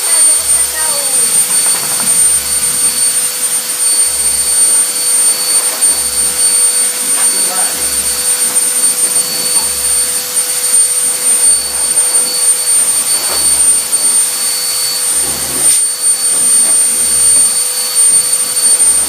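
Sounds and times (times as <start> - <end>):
hair dryer blowing with whine: 0.0 - 19.0.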